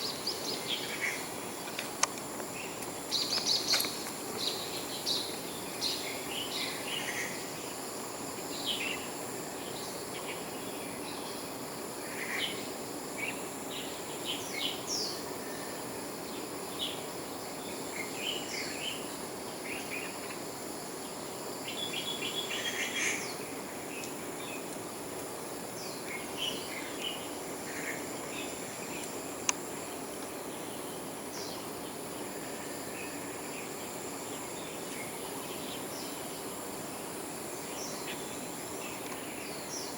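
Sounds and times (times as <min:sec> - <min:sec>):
high insect drone: 0:00.0 - 0:39.9
birds chirping: 0:02.6 - 0:07.0.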